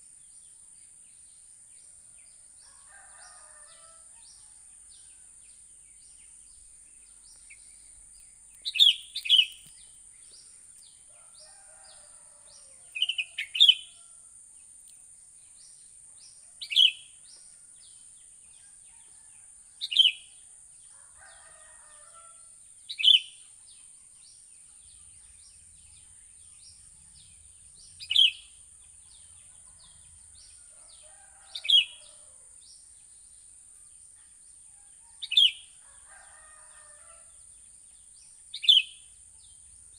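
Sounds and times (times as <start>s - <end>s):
small birds chirping: 5.8s - 15.1s, 15.7s - 17.6s, 22.9s - 23.5s, 24.3s - 34.4s, 37.8s - 39.9s
bulbul calling: 8.6s - 9.9s, 13.0s - 13.9s, 28.0s - 28.6s.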